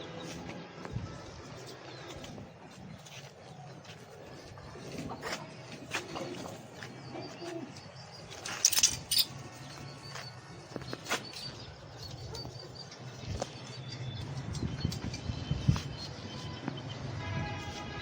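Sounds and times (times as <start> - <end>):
pigeons cooing: 4.6 - 8.1.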